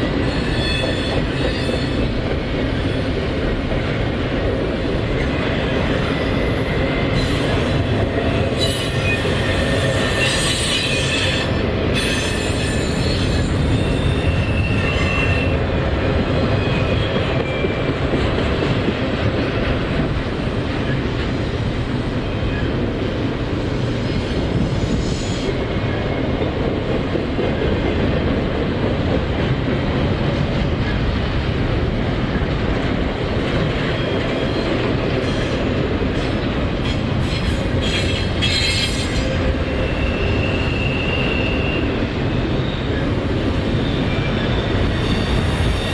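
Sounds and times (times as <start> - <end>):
train wheels on rails: 0.0 - 45.9
high wheel squeals: 8.4 - 15.6, 37.2 - 42.0, 42.6 - 45.9.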